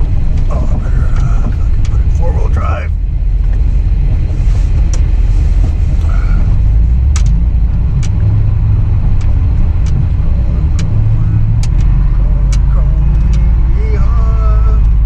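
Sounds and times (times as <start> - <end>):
engine and road rumble: 0.0 - 15.0
clicks and knocks from vehicle: 3.4 - 8.3, 9.1 - 13.5.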